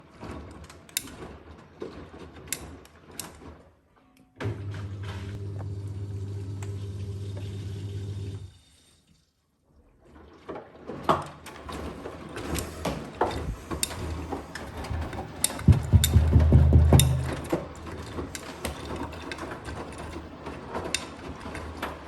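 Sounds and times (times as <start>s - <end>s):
washing machine motor hum: 4.4s - 8.6s, 11.6s - 22.0s
washing machine drum knocking: 15.6s - 17.8s.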